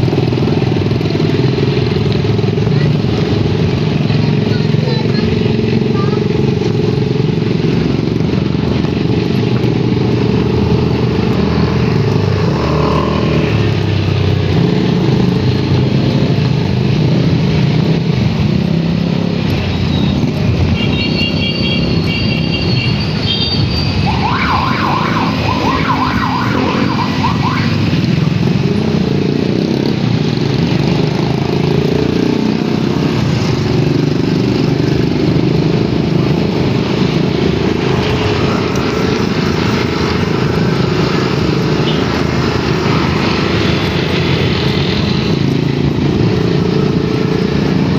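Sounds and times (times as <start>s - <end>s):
road noise: 0.0s - 47.9s
wavering high sound: 23.9s - 28.0s.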